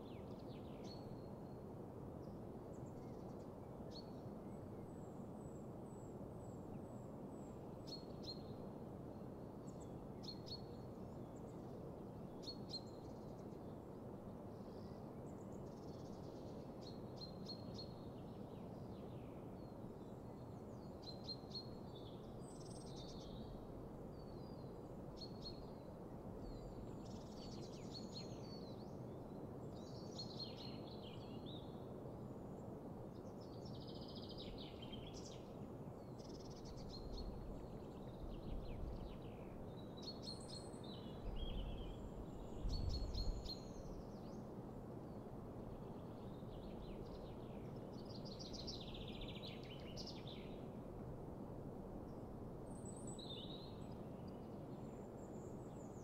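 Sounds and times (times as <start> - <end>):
low background hiss: 0.0 - 56.0
songbirds chirping: 9.4 - 50.8.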